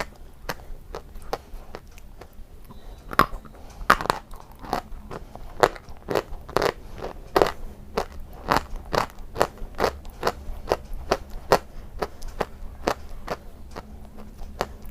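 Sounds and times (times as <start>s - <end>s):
chalk being chewed: 0.0s - 14.9s.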